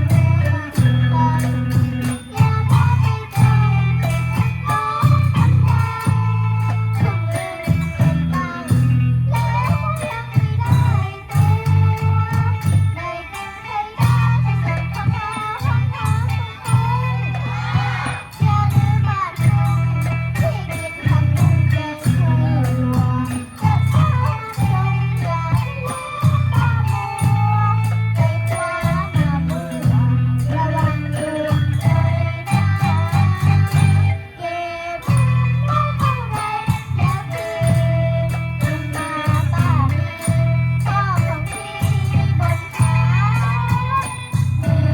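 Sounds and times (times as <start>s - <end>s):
heavy bass line: 0.0s - 13.0s
percussion: 0.0s - 44.9s
person singing: 0.0s - 44.9s
plucked-string melody: 0.0s - 44.9s.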